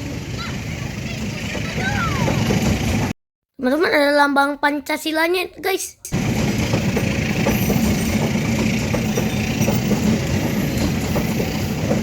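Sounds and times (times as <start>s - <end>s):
train wheels rumbling on rails: 0.0s - 3.2s, 6.1s - 12.0s.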